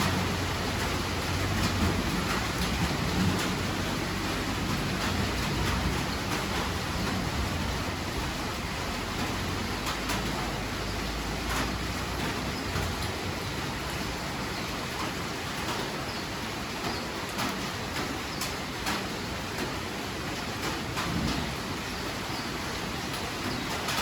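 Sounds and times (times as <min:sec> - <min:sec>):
low rumble of thunder: 0:00.0 - 0:14.2, 0:20.9 - 0:21.9
steady rain: 0:00.0 - 0:24.0.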